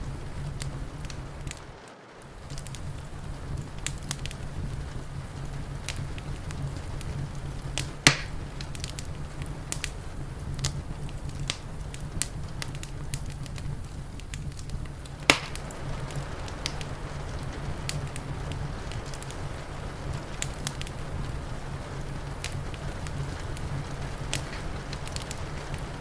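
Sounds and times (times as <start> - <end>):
loud fire pops: 0.0 - 26.0
low rumble of fire: 0.0 - 26.0
wood fire crackling: 0.0 - 26.0.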